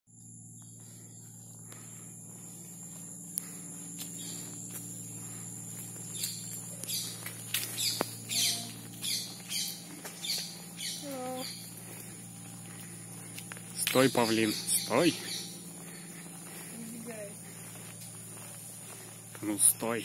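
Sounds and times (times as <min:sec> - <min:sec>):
insect drone: 0:00.1 - 0:20.0
low hum: 0:00.1 - 0:20.0
bird chirping: 0:04.1 - 0:20.0.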